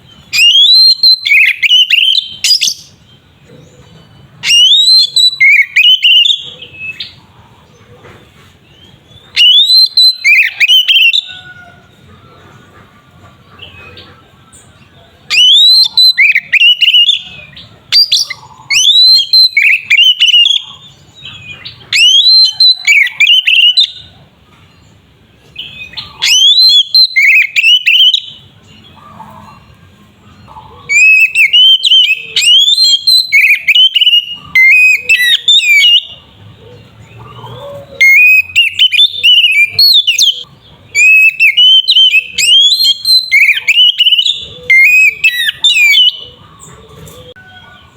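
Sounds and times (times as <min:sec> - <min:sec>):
songbird whistling phrases: 0:00.2 - 0:03.0, 0:04.4 - 0:07.2, 0:09.3 - 0:11.6, 0:15.3 - 0:24.1, 0:25.6 - 0:28.5, 0:30.9 - 0:36.3, 0:37.8 - 0:46.4.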